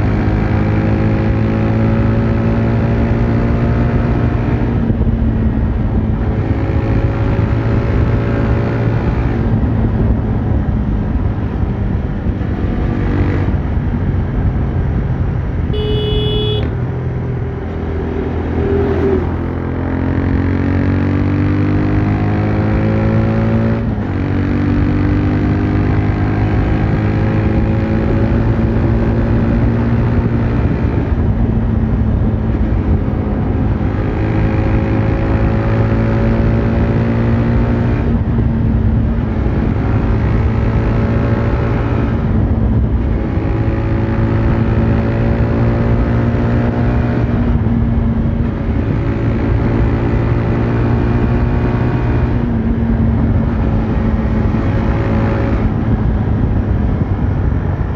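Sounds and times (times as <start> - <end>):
motorcycle engine and exhaust: 0.0 - 57.9
short high-pitched beep: 15.8 - 16.7.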